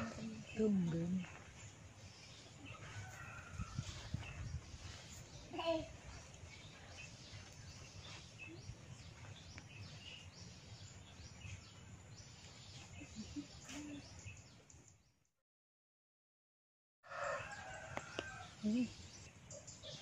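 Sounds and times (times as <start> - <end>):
birds chirping: 0.0 - 15.3.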